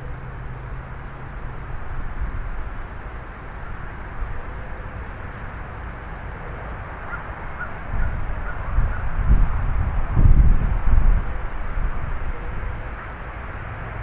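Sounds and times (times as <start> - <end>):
wind and rain: 0.0 - 14.0
wind buffeting microphone: 7.6 - 12.8.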